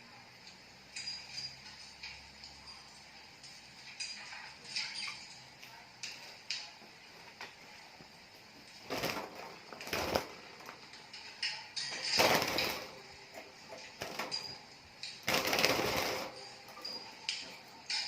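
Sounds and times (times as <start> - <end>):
small birds chirping: 4.0 - 6.2.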